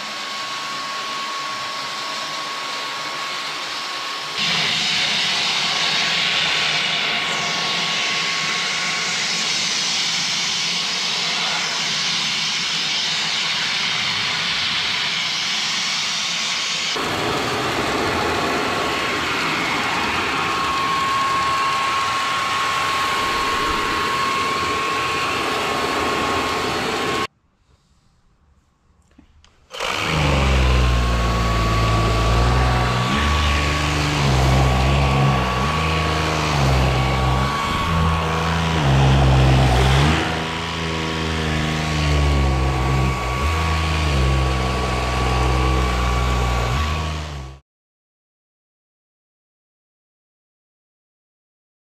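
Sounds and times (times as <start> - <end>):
stick vacuum running: 0.0 - 27.3, 29.7 - 47.6
deep low hum: 31.9 - 47.6.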